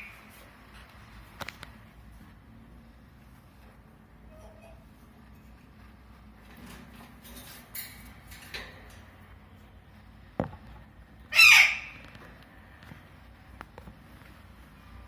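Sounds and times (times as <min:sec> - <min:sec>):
parrot squawk: 0:11.3 - 0:12.0.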